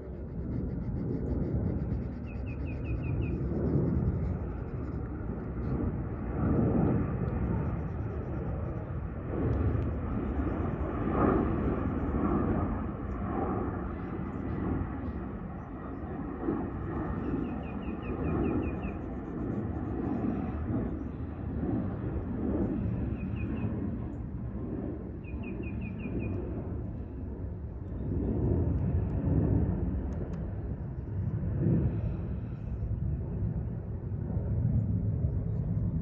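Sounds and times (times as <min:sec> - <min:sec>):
low rumble: 0:00.0 - 0:22.6.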